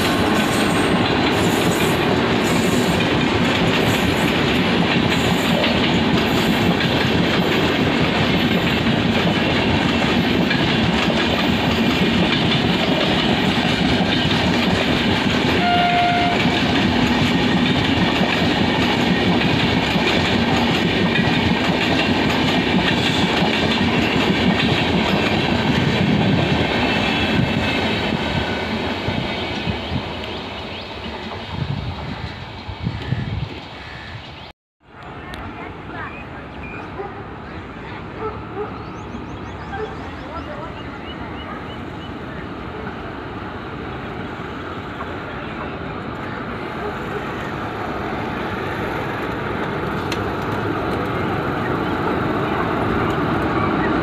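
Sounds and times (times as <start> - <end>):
express train passing: 0.0 - 54.0
wheels clacking over rail joints: 46.2 - 54.0.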